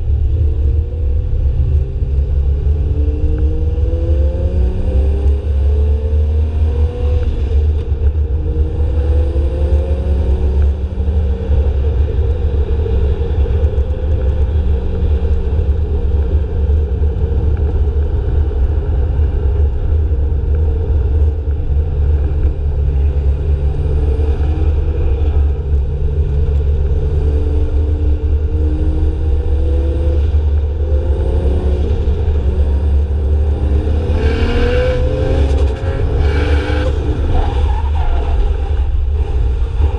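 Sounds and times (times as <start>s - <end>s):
heavy low rumble: 0.0s - 39.9s
distant car engines revving: 19.1s - 39.9s.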